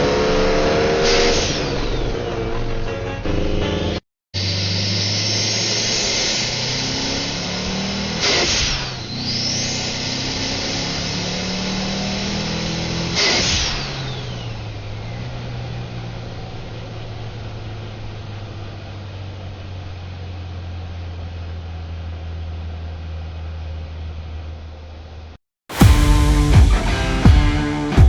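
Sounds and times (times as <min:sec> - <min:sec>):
turbo blow-off and whistle: 0:00.0 - 0:02.4, 0:04.4 - 0:15.3, 0:25.7 - 0:28.0
car engine revving: 0:00.0 - 0:28.0
induction hiss: 0:04.4 - 0:14.5, 0:25.7 - 0:28.0.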